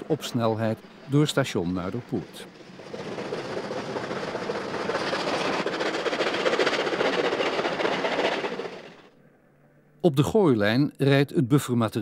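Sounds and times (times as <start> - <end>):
wheels clattering over rails: 0.0 - 9.2
train passing at speed: 0.0 - 10.0.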